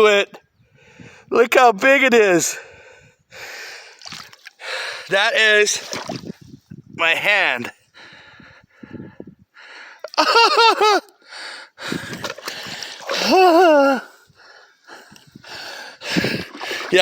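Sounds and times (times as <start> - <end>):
heavy breathing: 2.6 - 5.1, 7.9 - 10.0, 11.2 - 17.0
man's excited vocal sounds: 13.1 - 14.1.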